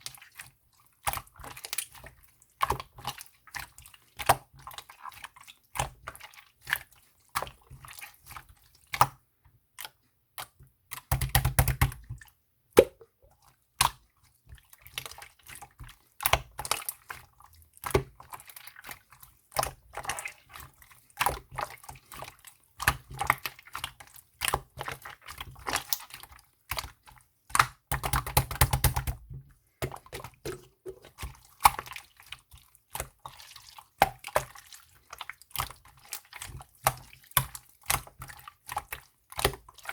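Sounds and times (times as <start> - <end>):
slime squishing and popping: 12.8 - 13.1.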